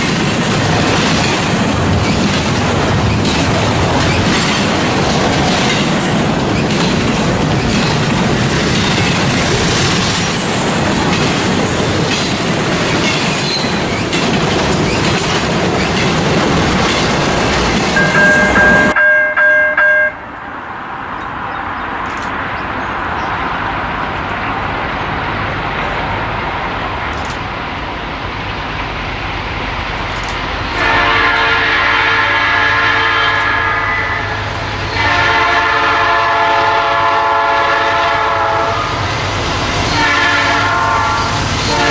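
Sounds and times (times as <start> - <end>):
locomotive rumble: 0.0 - 19.0, 20.2 - 41.9
train wheels clattering over rails: 0.0 - 19.0, 34.4 - 41.9
locomotive air horn blasts: 30.7 - 34.4, 35.0 - 39.0, 40.0 - 41.9.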